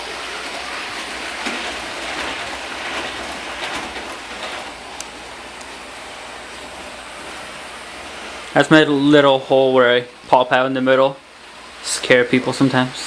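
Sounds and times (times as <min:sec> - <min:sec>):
model train running on track: 0:00.0 - 0:10.2.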